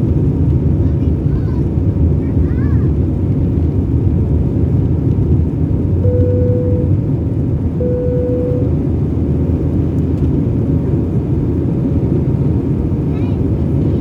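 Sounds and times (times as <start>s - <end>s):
airplane engines and airflow rumble: 0.0s - 14.0s
cabin chime tones: 6.0s - 6.9s.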